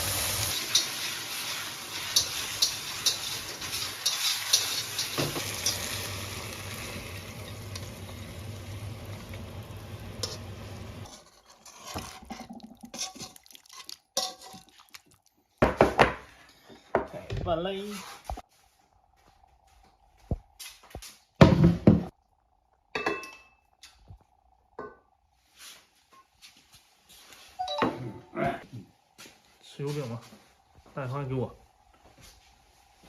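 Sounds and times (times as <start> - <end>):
food sizzling in a wok: 0.0 - 12.3
spatula scraping a pan: 0.5 - 6.0, 10.2 - 14.8.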